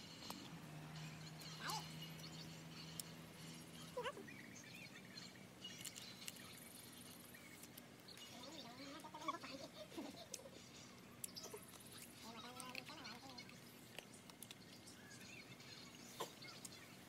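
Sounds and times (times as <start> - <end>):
bird chirps: 0.1 - 9.0, 14.5 - 17.0.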